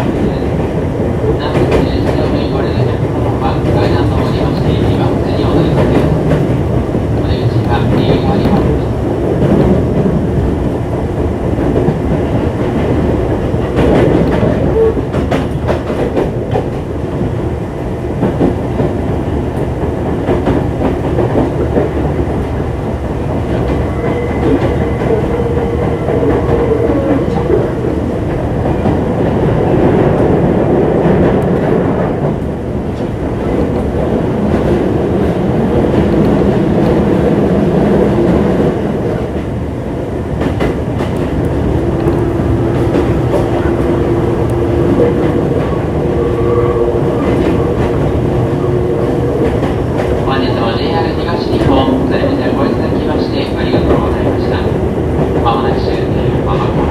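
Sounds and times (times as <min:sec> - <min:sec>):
train wheels rumbling on rail: 0:00.0 - 0:56.9
rail-joint clicks: 0:10.6 - 0:17.3, 0:40.3 - 0:56.9.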